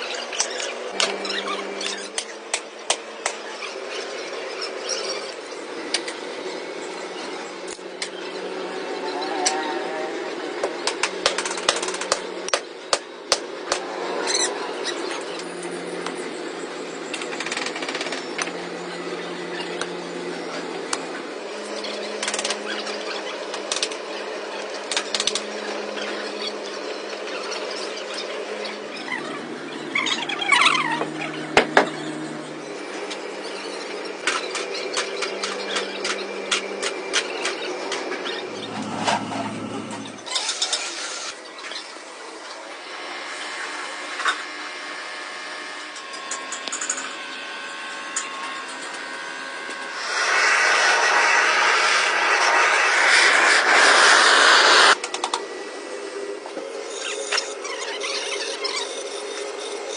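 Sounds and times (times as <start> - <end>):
workshop machinery humming: 0.0 - 59.9
tool noise: 32.9 - 41.8
machinery hissing: 49.9 - 55.0.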